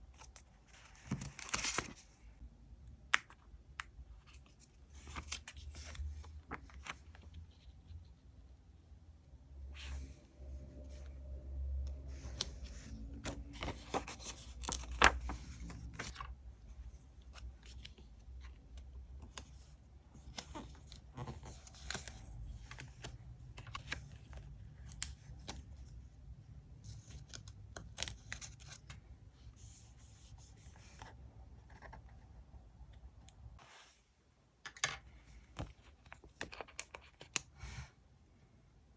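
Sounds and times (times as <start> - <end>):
paper rustling: 0.2 - 2.2, 12.0 - 16.3.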